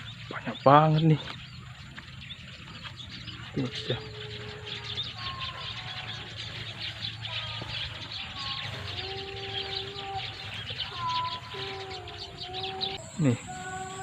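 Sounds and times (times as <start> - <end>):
flock of small birds chirping: 0.0 - 14.0
long held tones: 8.2 - 14.0.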